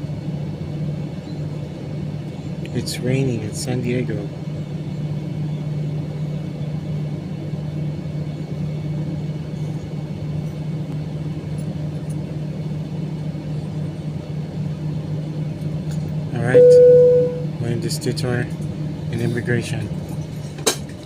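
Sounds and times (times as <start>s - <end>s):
jet engines at low power: 0.0s - 21.0s
aircraft cabin hum: 4.3s - 17.6s.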